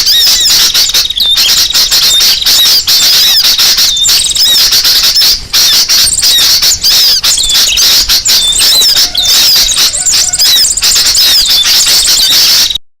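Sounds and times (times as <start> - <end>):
flock of small birds chirping: 0.0 - 12.8.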